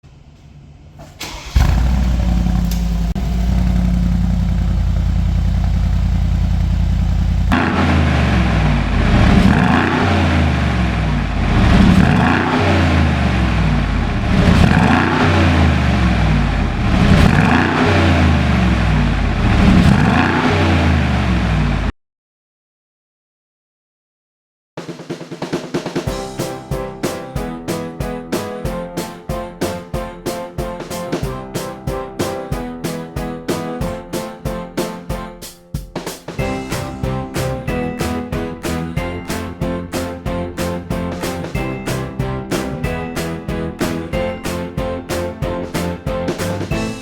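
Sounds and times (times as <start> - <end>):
car engine idling: 1.2 - 21.9
car engine revving: 1.2 - 21.9.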